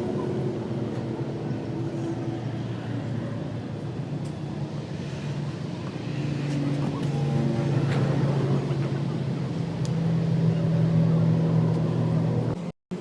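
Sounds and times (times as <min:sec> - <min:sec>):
engine humming steadily: 0:00.0 - 0:13.0.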